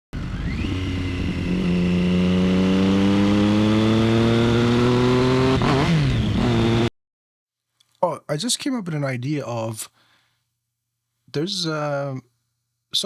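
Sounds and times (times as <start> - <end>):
motorcycle engine accelerating: 0.2 - 6.9.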